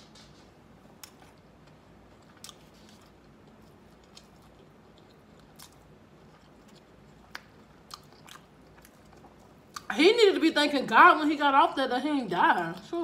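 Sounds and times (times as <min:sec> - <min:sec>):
chewing crispy food: 0:01.0 - 0:10.0.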